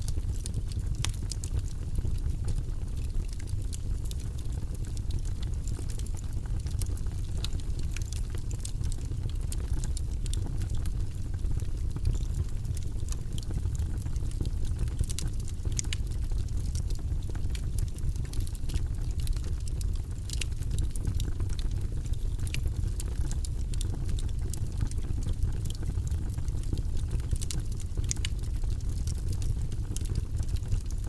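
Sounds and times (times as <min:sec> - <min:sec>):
fire crackling and popping: 0:00.0 - 0:31.0
fire rumbling: 0:00.0 - 0:31.0.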